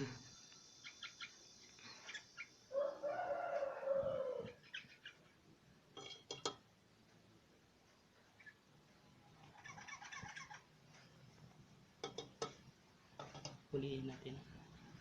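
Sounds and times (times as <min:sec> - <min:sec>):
rooster crowing: 0:02.7 - 0:04.6.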